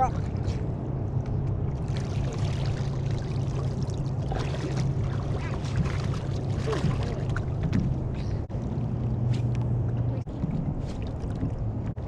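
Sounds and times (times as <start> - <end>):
low rumble: 0.0 - 12.0
water sloshing and trickling: 0.0 - 12.0.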